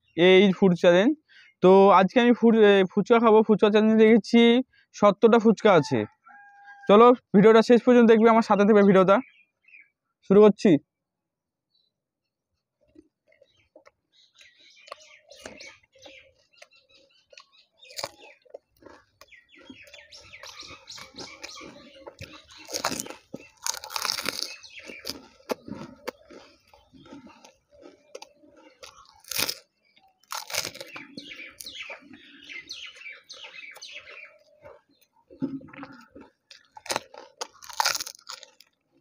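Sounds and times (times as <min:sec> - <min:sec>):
crunching and chewing crisp shells: 0:12.5 - 0:39.0.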